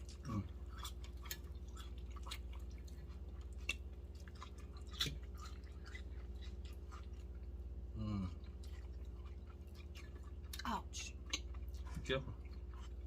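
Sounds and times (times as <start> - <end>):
chewing and mouth smacks: 0.0 - 13.0
steady low hum: 0.0 - 13.0.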